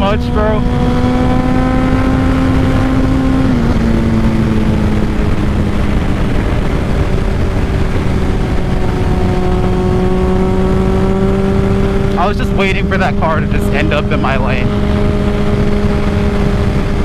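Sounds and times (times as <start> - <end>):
motorcycle engine cruising: 0.0 - 17.0
wind rushing on microphone: 0.0 - 17.0.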